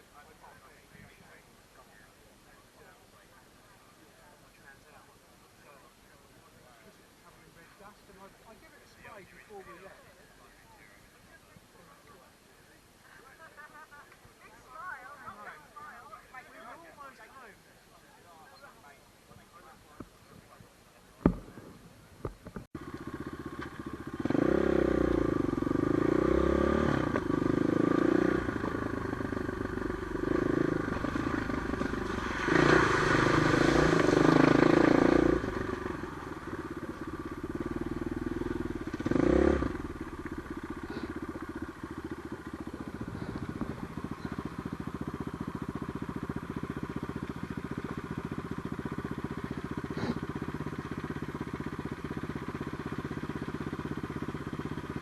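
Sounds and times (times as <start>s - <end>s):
motorcycle engine revving: 22.8s - 55.0s.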